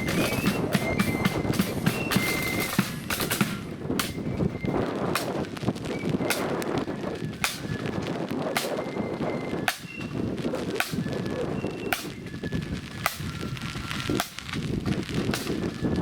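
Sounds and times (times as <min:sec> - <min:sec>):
drum cracks: 0:00.0 - 0:04.2, 0:07.4 - 0:07.8, 0:09.7 - 0:10.2, 0:14.2 - 0:14.5
high flute notes: 0:00.0 - 0:14.1.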